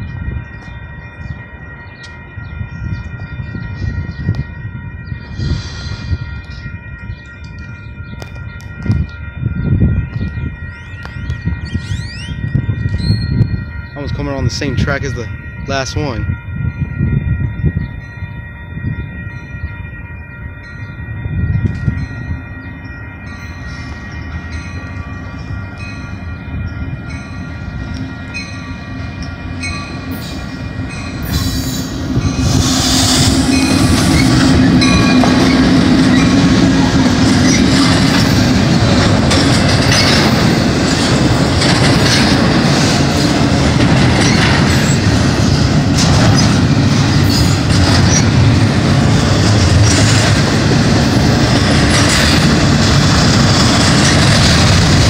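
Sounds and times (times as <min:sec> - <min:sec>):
diesel locomotives passing: 0:00.0 - 0:55.0
freight cars rumbling and clattering: 0:23.5 - 0:55.0.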